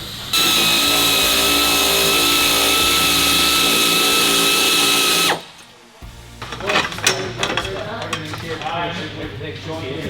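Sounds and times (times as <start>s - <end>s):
air tool whine and hiss: 0.0s - 5.7s.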